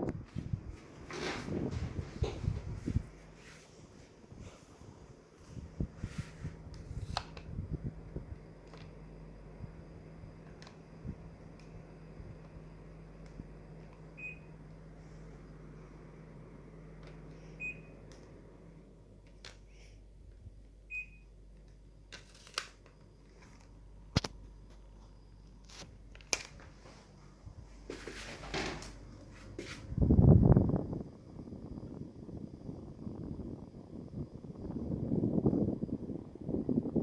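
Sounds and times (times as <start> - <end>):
low steady hum: 0.0 - 37.0
air conditioner beeps: 5.6 - 19.0, 20.8 - 21.6.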